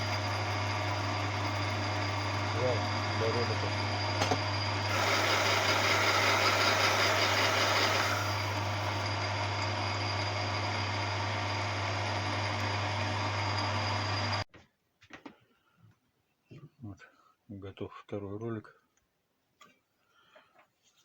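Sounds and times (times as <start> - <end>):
harsh metal cutting: 0.0 - 14.4
metal lathe motor hum: 0.0 - 14.4.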